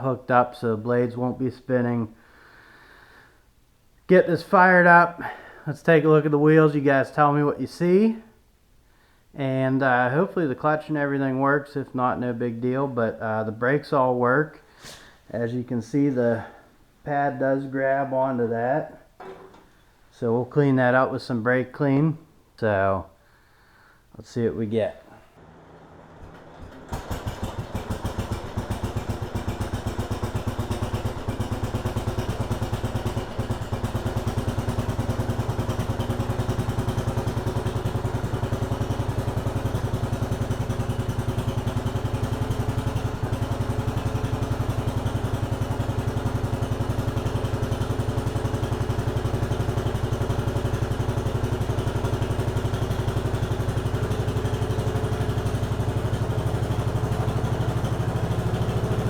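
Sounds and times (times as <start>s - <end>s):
small engine running: 25.4s - 59.0s.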